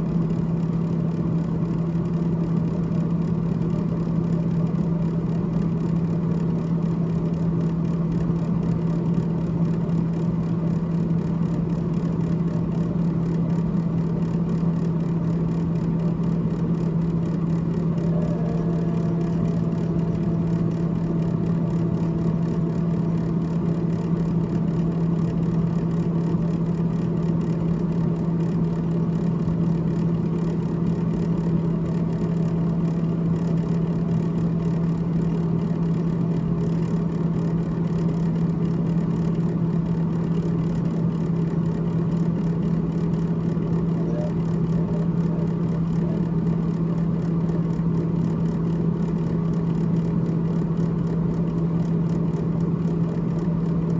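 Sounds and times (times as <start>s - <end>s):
freezer fan humming: 0.0s - 53.9s.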